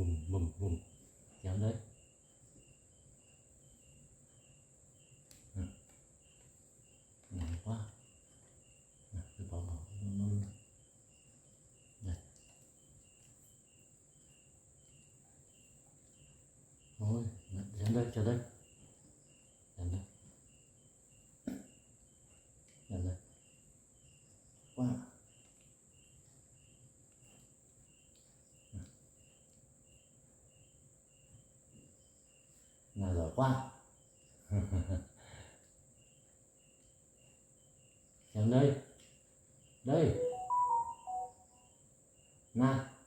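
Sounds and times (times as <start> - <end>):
insects chirping: 0.0 - 43.0.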